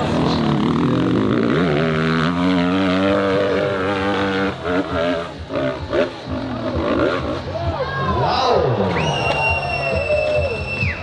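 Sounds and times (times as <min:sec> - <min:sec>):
dirt bike engine revving high: 0:00.0 - 0:07.5.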